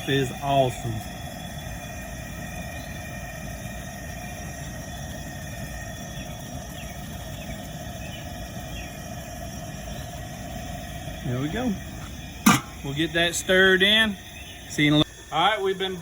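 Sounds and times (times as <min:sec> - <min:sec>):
propane burner rumbling: 0:00.0 - 0:16.0.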